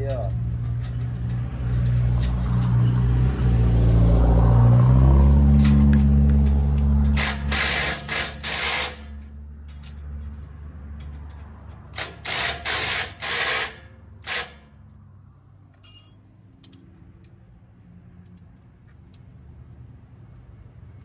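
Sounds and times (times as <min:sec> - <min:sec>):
ratchet wrench clicking: 0:05.6 - 0:09.2, 0:11.0 - 0:14.6.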